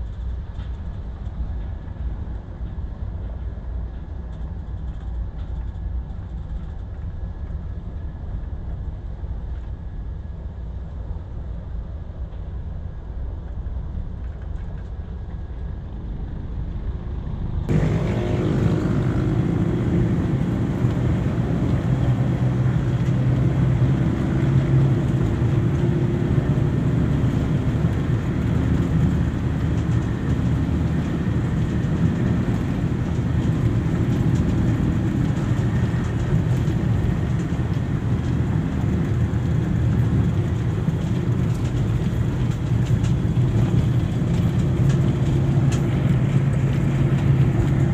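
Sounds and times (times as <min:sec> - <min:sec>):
motor vehicle engine rumble: 0:12.4 - 0:47.9.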